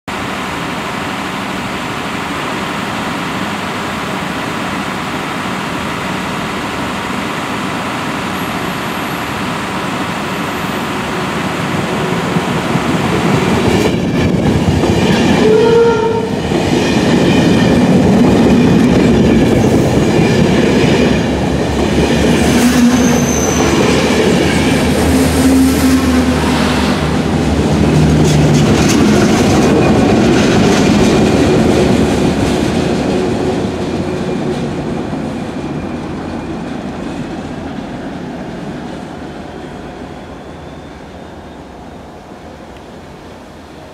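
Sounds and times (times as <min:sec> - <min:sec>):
diesel locomotive drone: 0:00.1 - 0:43.9
short train horn note: 0:15.4 - 0:16.4
train wheels clattering over joints: 0:27.6 - 0:35.6.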